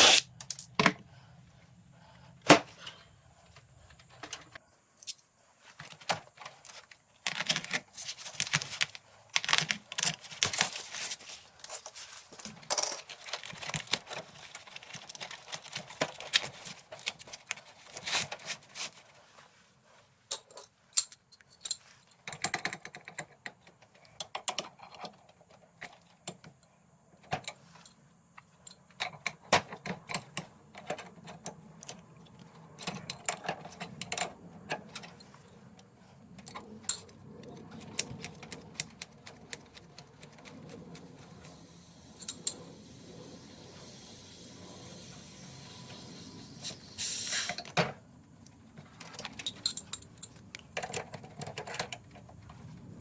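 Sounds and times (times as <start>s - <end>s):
steady noise: 40.5s - 48.3s
clinks of hand tools: 49.2s - 52.0s.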